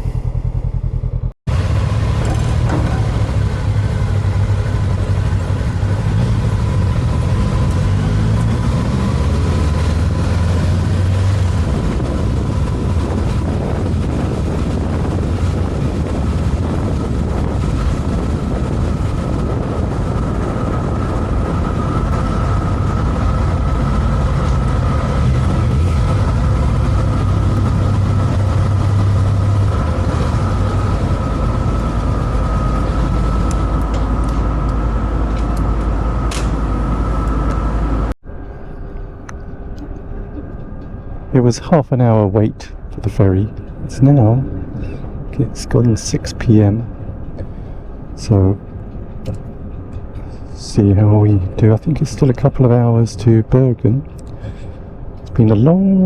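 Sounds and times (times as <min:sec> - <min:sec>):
motorcycle engine running: 0:00.0 - 0:38.1
wind and road noise: 0:00.0 - 0:56.0.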